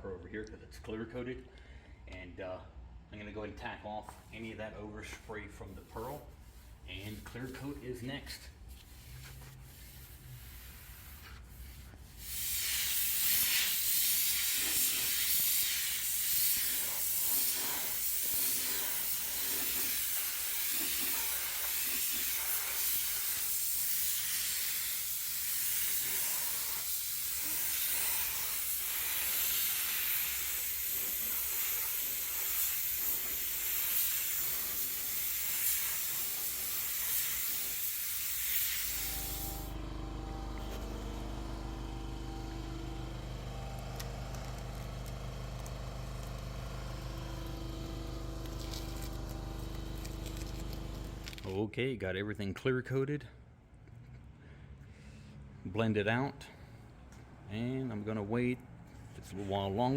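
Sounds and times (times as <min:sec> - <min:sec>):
paint spray gun hissing: 0:09.7 - 0:39.8, 0:42.2 - 0:51.4.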